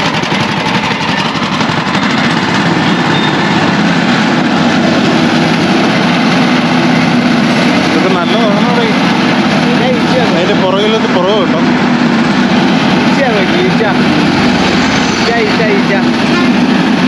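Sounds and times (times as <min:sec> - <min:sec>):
motorized juice crusher running: 0:00.0 - 0:17.0.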